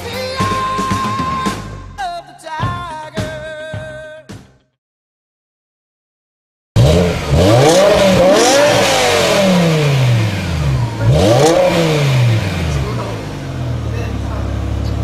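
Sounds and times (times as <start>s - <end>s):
car engine revving: 6.8s - 15.0s.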